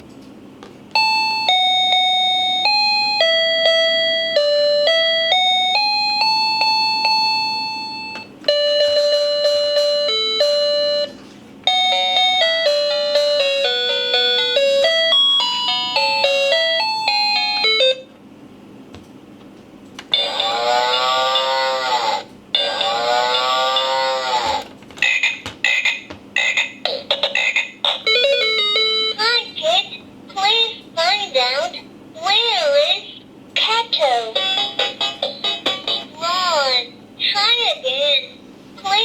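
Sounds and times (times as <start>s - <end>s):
electronic toy piano melodies: 1.0s - 18.1s, 28.0s - 29.3s.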